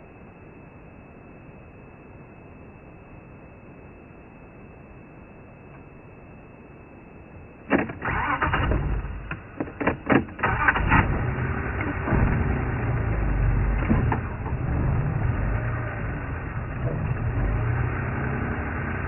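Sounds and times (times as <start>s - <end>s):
vehicle engine starting and running: 7.7s - 19.0s
sharp clatters and knocks: 11.8s - 15.3s.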